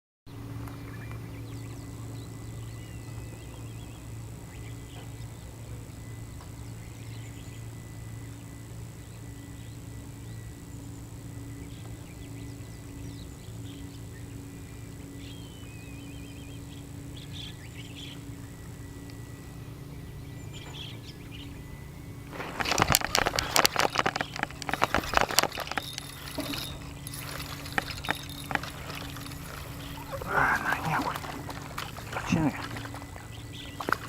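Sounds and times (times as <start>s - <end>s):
steady low hum: 0.3s - 34.0s
small birds chirping: 0.5s - 5.3s, 15.2s - 18.4s, 19.0s - 34.0s.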